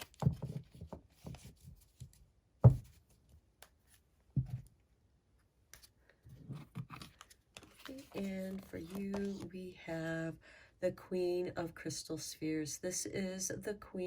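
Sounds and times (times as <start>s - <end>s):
cards clicking and rustling: 6.5s - 9.5s.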